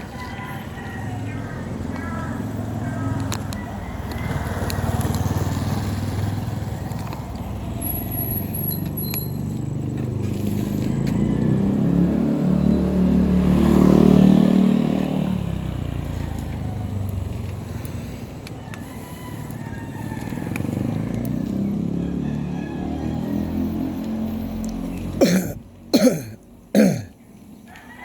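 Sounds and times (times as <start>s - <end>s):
vehicle engine running: 4.1s - 22.3s.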